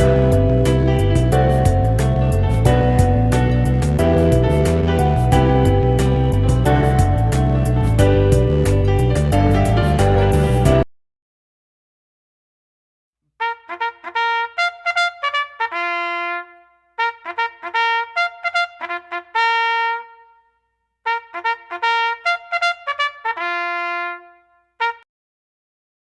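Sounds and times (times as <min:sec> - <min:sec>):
solo trumpet playing lively tune: 0:13.4 - 0:20.4, 0:21.0 - 0:25.0.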